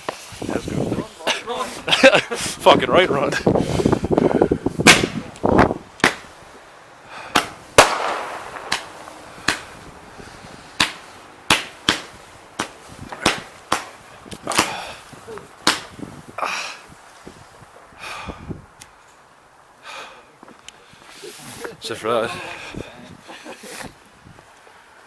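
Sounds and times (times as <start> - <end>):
fireworks bangs: 4.7 - 6.4, 7.2 - 14.9.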